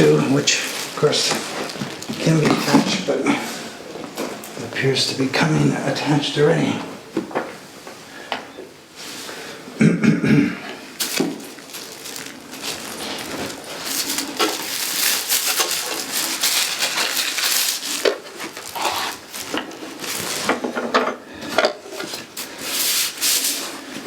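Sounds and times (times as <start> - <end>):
packaging rubbing and rustling: 0.0 - 3.0, 11.0 - 24.0.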